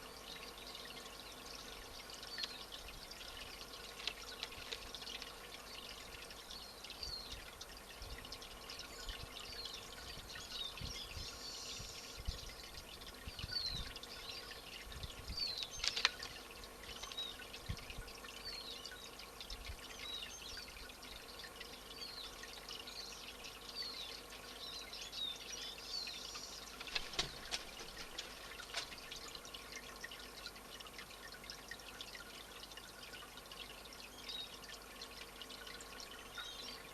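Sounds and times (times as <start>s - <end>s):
small birds chirping: 0.0s - 30.4s, 32.2s - 36.9s
steady hiss: 0.0s - 31.0s
sharp clicks: 15.6s - 16.4s.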